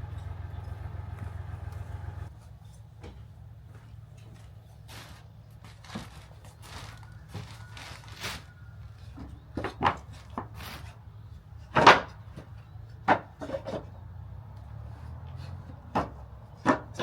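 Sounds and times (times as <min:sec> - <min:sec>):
wood scraping on wood: 0:04.8 - 0:11.1
wooden boards knocking: 0:11.7 - 0:13.9, 0:15.8 - 0:17.0.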